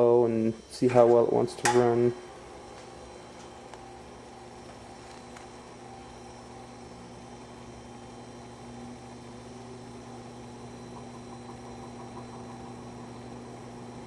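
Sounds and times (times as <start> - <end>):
electric fan motor humming: 0.0 - 14.0.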